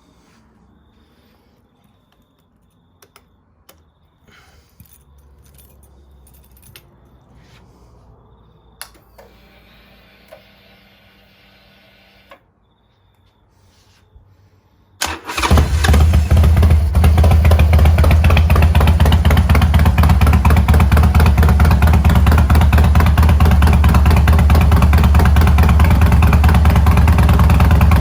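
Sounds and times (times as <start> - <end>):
keys jangling: 4.6 - 7.2.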